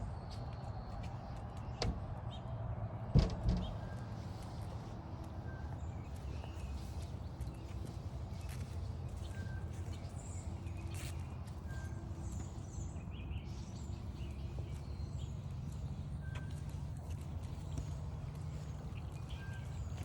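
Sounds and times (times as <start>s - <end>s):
footsteps crunching on trail: 4.4s - 12.8s, 14.1s - 20.0s.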